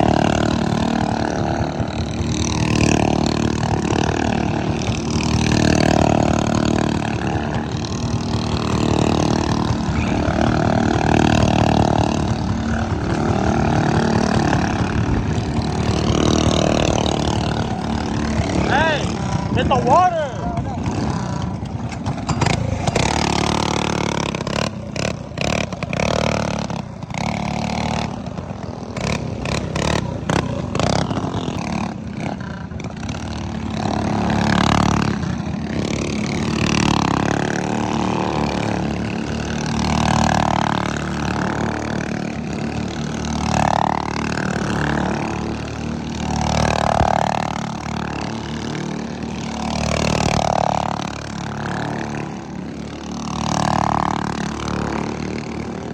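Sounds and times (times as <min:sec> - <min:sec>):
minibike engine running: 0:00.0 - 0:55.9.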